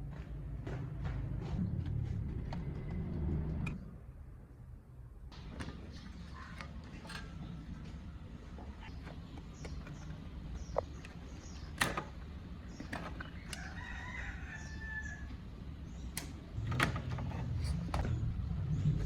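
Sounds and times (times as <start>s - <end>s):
rooster crowing: 13.4s - 15.4s.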